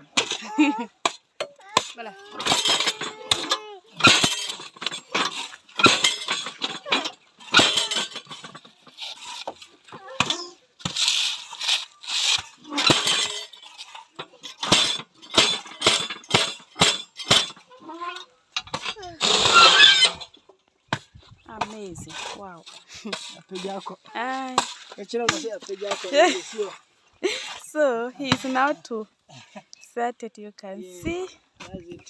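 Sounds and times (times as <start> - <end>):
metallic clinking: 0.0 - 20.5
gritty scraping: 0.0 - 29.2.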